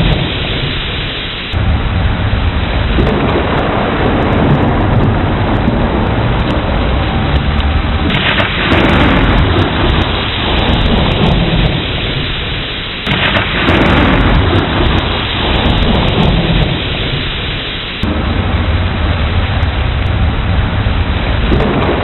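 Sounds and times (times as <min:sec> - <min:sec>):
heavy rain: 0:00.0 - 0:22.0
thunder rumbling: 0:00.0 - 0:22.0.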